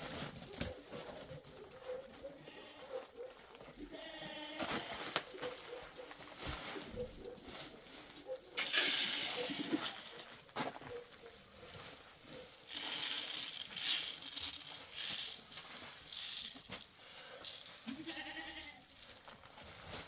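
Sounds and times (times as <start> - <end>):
goat or sheep bleat: 3.8 - 5.2, 17.8 - 18.9.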